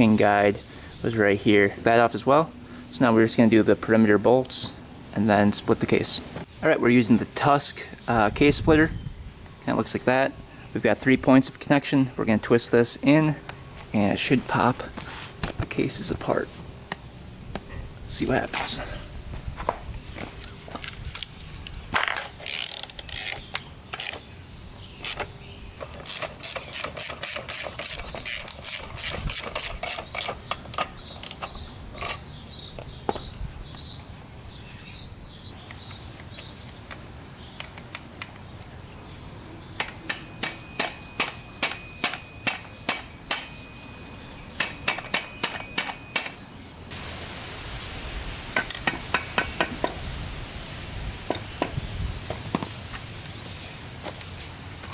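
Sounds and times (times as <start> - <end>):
ratchet wrench clicking: 22.4 - 23.4, 25.0 - 32.2.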